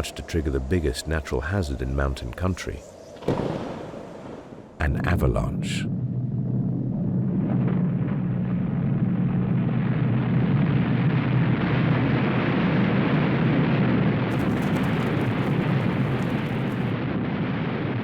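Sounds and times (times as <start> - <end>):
avalanche rumbling roar: 14.3 - 17.0
snow crackling: 14.3 - 17.0.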